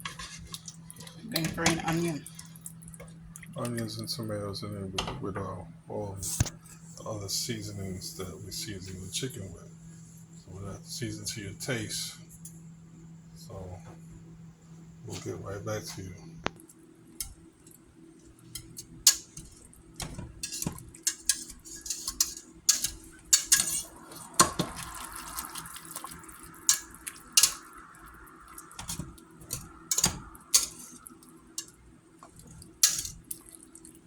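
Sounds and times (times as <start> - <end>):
pots and dishes clattering: 18.5 - 24.9, 26.6 - 27.7, 28.8 - 31.0, 31.6 - 33.4
running water: 23.6 - 34.0.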